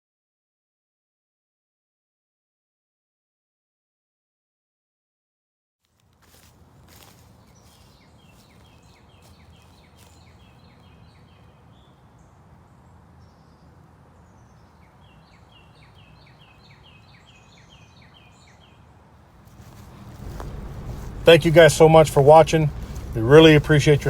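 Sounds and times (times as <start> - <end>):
low outdoor rumble: 6.0 - 24.0
songbird singing: 6.0 - 24.0.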